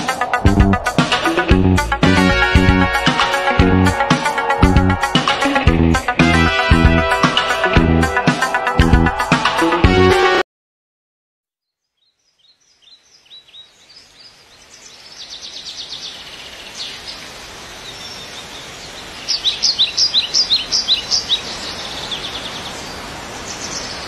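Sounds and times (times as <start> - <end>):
steady outdoor hiss: 0.0 - 7.8, 12.2 - 24.0
small birds chirping: 11.6 - 24.0.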